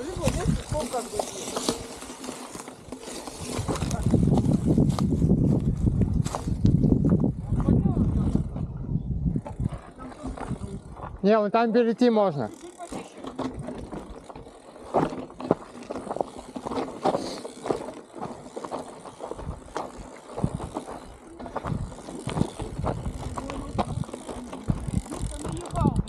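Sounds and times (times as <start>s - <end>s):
wind buffeting microphone: 0.0s - 2.0s, 3.2s - 11.2s, 19.2s - 26.0s.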